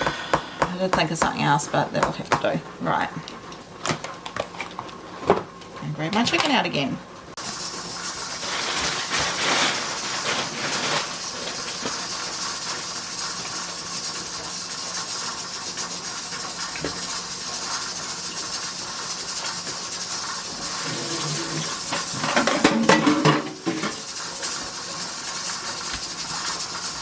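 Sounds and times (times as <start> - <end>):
steam venting hiss: 7.4 - 27.0.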